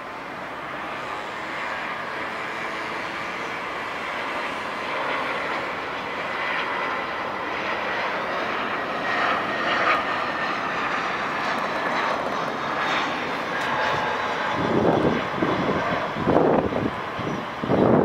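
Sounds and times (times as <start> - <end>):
jet airliner engines rushing: 0.0 - 18.0.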